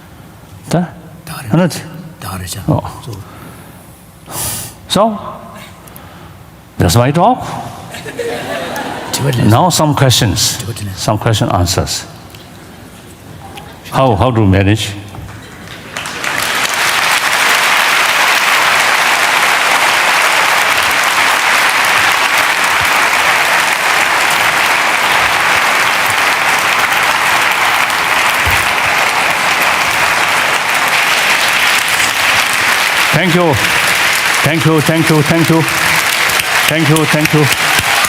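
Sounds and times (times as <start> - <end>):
audience applauding: 15.3 - 38.0.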